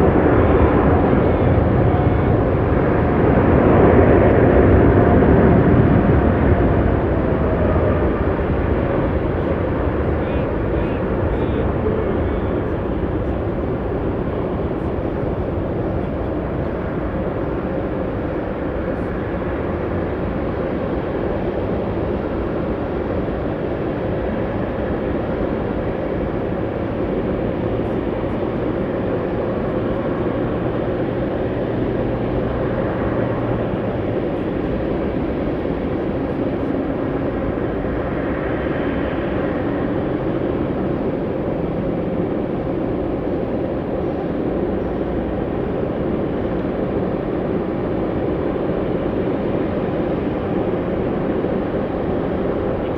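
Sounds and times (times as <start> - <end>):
distant jet engines rumbling: 0.0 - 52.9.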